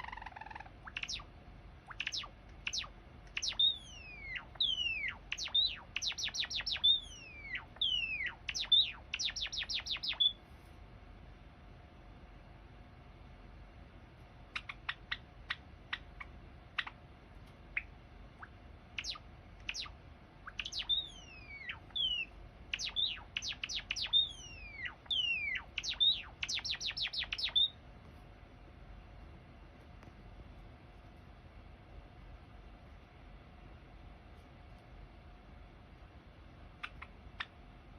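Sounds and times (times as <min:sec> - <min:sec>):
sparrow singing chip notes: 0:00.0 - 0:01.3, 0:01.9 - 0:10.4, 0:17.7 - 0:27.8.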